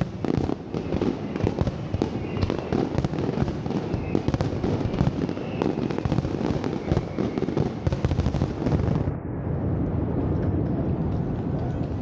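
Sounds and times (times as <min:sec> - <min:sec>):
fireworks bangs and crackles: 0:00.0 - 0:12.0
dull steady rumbling: 0:06.8 - 0:12.0.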